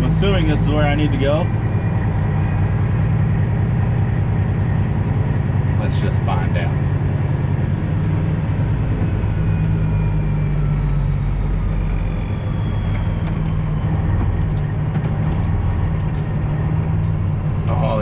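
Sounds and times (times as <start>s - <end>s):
truck diesel engine running: 0.0s - 18.0s
faint falling whine: 5.8s - 18.0s.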